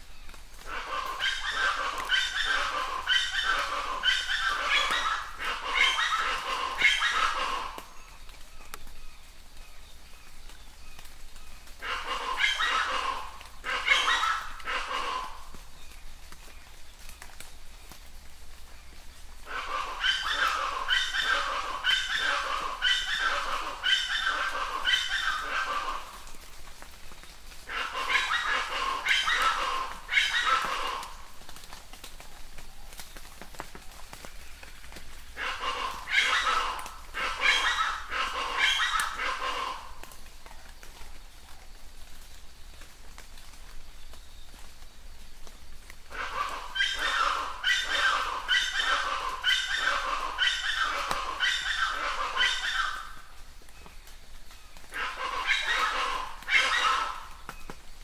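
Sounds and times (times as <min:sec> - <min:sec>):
bird yelping call: 0:00.7 - 0:08.0, 0:11.8 - 0:15.4, 0:19.5 - 0:26.2, 0:27.7 - 0:31.2, 0:35.4 - 0:40.0, 0:46.1 - 0:53.3, 0:54.8 - 0:57.8
bird calling harsh notes: 0:46.1 - 0:53.3.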